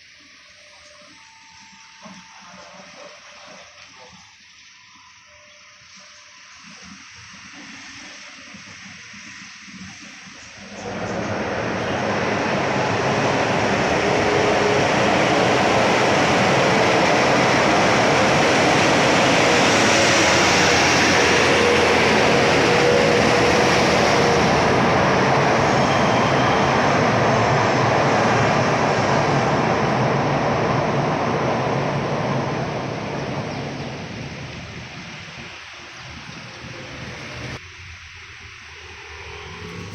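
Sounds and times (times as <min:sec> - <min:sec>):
train wheels on rail: 0:07.4 - 0:37.6.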